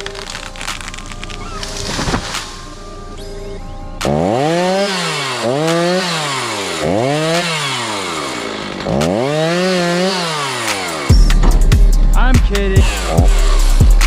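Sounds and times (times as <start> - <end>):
chainsaw revving: 4.0 - 14.0.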